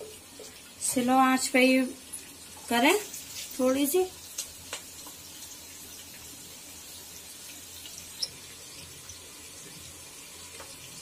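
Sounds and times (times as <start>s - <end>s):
onions sizzling in oil: 0.0s - 11.0s
faint pops of frying: 4.2s - 5.3s, 10.5s - 10.8s.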